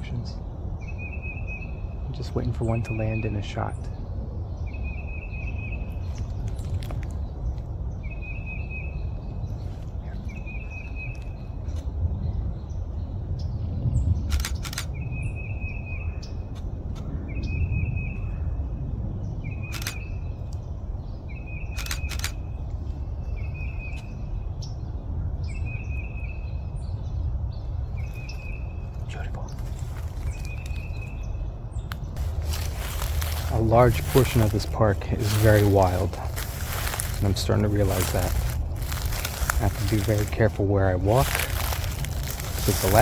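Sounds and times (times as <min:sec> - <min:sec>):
steady low rumble: 0:00.0 - 0:43.0
woodpecker rattling call: 0:21.4 - 0:22.6
camera shutter clicks: 0:21.7 - 0:22.4.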